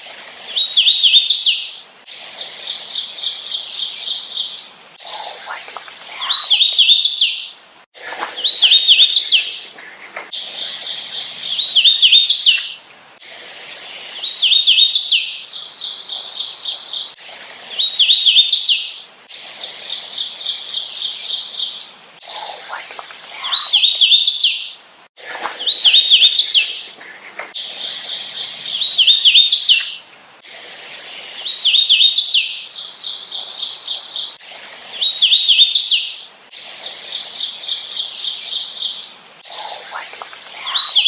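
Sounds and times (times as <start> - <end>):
bird whistled song: 6.1 - 7.6, 8.4 - 9.6, 10.4 - 12.8, 14.2 - 17.2, 25.6 - 26.9, 27.6 - 30.0, 31.4 - 34.3, 35.0 - 36.2.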